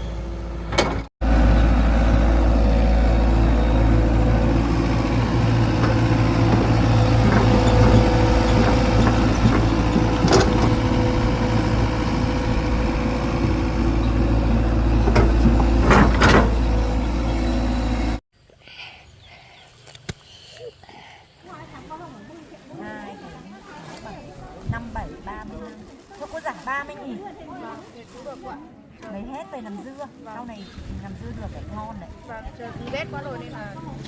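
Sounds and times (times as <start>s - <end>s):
heavy machine engine running: 0.0s - 18.2s.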